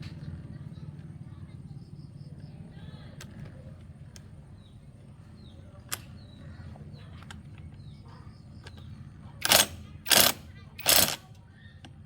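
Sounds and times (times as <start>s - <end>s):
sharp click: 9.4s - 11.2s.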